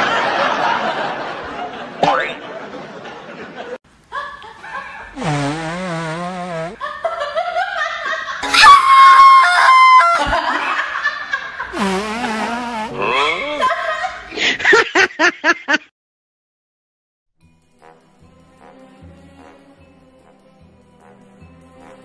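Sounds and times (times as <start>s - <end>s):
wavering laughter: 0.0s - 5.2s, 9.9s - 11.8s, 12.9s - 15.9s.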